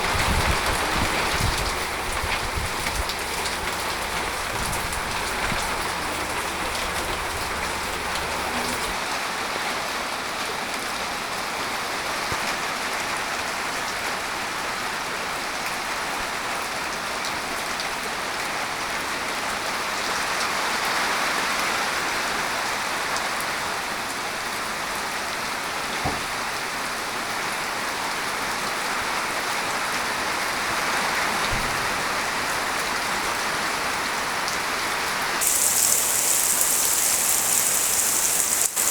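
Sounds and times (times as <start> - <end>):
rain pattering: 0.0 - 9.1, 35.4 - 38.9.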